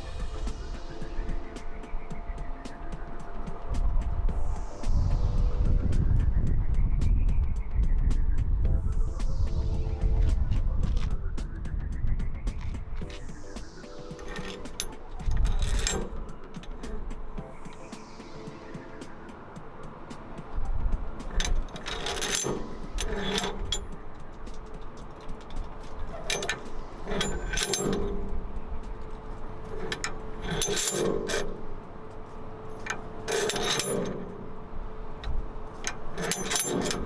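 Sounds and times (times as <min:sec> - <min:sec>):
metal parts clinking and rattling: 0:14.2 - 0:17.2, 0:21.2 - 0:37.0.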